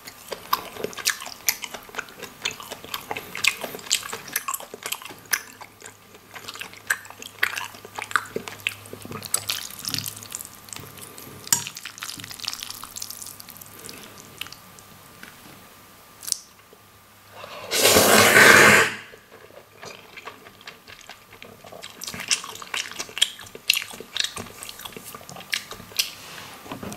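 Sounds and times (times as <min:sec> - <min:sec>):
wet chewing: 0:00.0 - 0:15.4, 0:19.3 - 0:26.3
slurp of noodles: 0:17.4 - 0:19.2.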